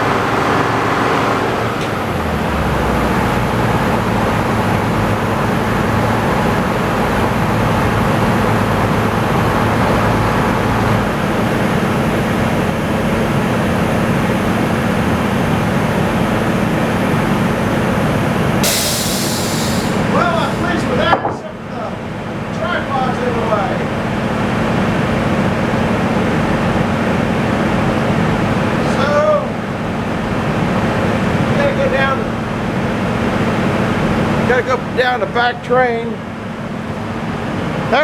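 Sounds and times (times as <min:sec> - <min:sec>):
sawmill machinery din: 0:00.0 - 0:36.3
hiss: 0:18.6 - 0:20.1.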